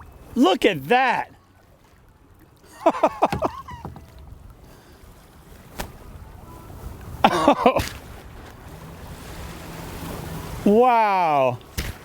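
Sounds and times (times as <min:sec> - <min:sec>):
water around kayak: 0:00.0 - 0:12.0
wind on microphone: 0:03.3 - 0:10.7.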